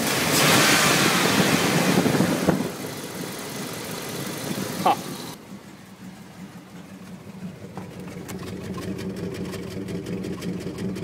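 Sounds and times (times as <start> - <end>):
engine idling roughly: 2.5 - 11.0.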